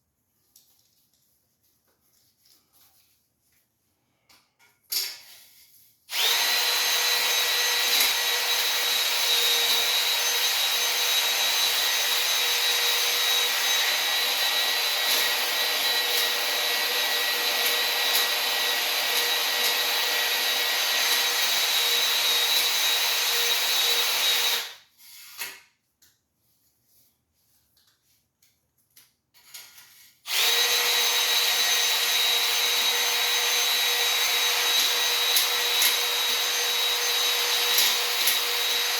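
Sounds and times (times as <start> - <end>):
electric drill whining: 6.1 - 24.8, 30.3 - 38.9.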